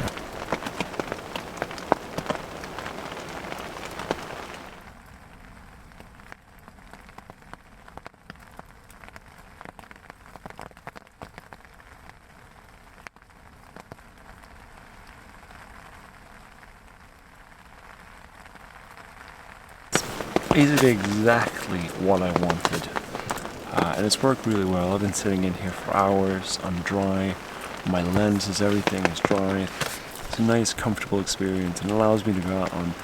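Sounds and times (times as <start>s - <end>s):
heavy rain pattering: 0.0s - 5.0s, 19.9s - 33.0s.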